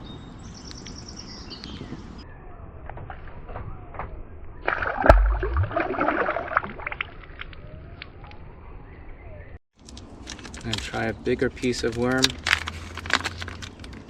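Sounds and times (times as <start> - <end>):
fish splashing into water: 4.6 - 7.7
water sloshing: 4.6 - 7.8.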